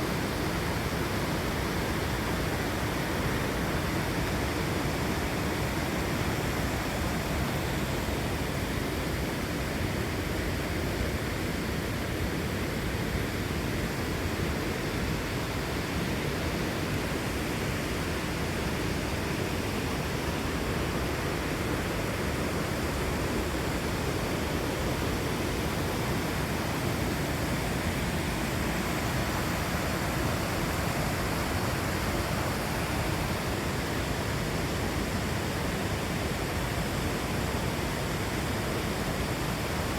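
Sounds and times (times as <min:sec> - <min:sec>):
waterfall roaring: 0:13.9 - 0:39.9.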